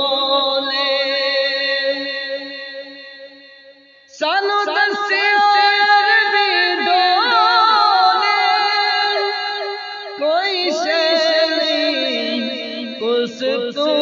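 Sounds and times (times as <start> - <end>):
devotional song singing: 0.0 - 14.0.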